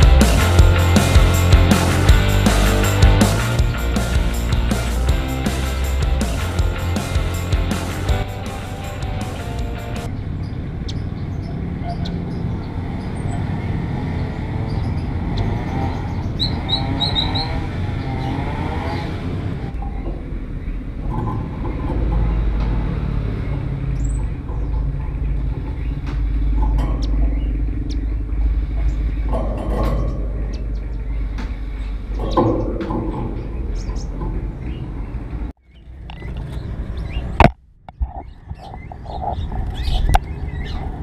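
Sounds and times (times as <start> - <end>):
steady low rumble: 0.0 - 10.1, 19.7 - 32.2
songbirds chirping: 0.0 - 41.0.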